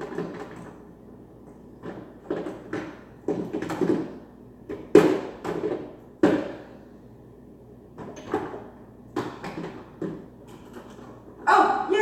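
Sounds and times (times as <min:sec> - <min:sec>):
knocks and clunks of bottles: 0:01.8 - 0:06.7.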